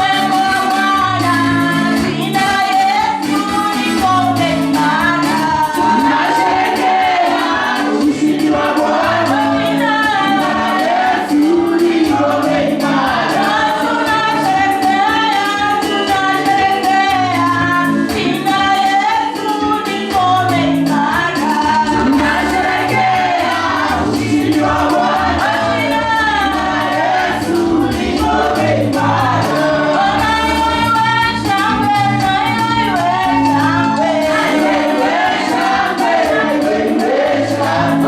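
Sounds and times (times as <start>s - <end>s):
voices singing together: 0.0s - 38.0s
steady beat and bass line: 20.6s - 38.0s.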